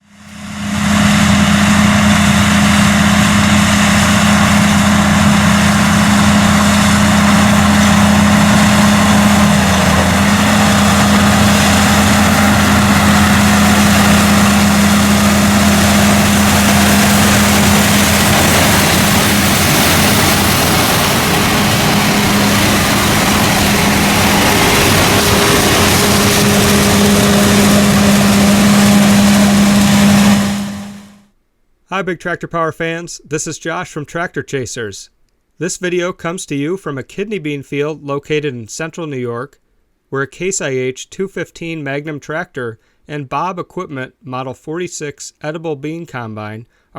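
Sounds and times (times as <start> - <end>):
tractor diesel engine hum: 0.0 - 31.3.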